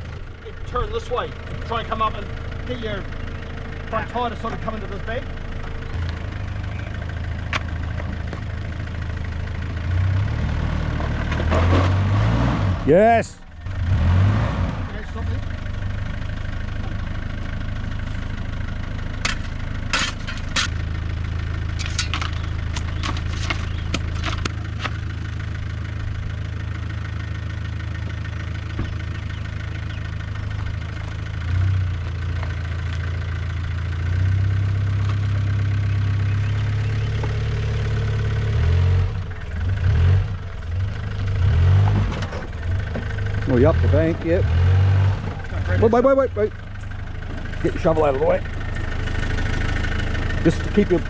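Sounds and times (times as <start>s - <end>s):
vehicle engine idling and revving: 0.0s - 51.0s
sharp clicks and knocks: 21.8s - 25.0s.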